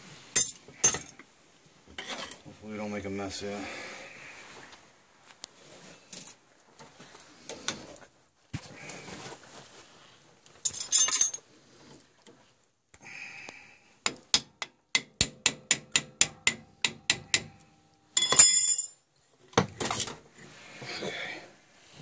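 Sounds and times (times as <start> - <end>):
hand tools striking metal: 14.1 - 17.6.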